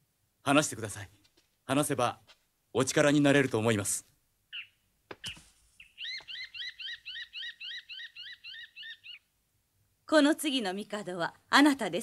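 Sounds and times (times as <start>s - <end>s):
small bird chirping: 4.5s - 9.3s.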